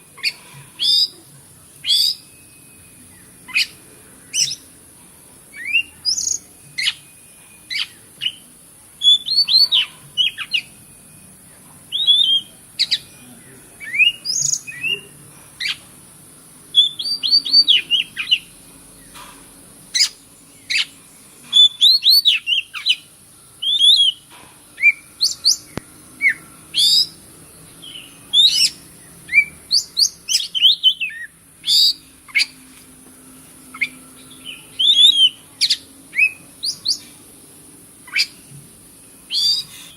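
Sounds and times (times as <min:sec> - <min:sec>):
steady high hiss: 0:00.0 - 0:39.9
magpie-robin singing: 0:00.1 - 0:04.8, 0:05.5 - 0:15.8, 0:16.7 - 0:19.2, 0:19.9 - 0:32.6, 0:33.7 - 0:37.2, 0:38.0 - 0:38.5, 0:39.2 - 0:39.9.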